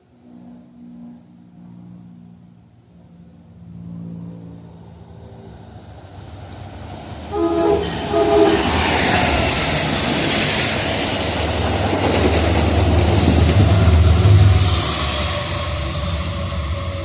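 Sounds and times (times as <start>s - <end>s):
train passing with rumble: 0.0s - 17.0s
train horn blasts: 7.3s - 9.4s.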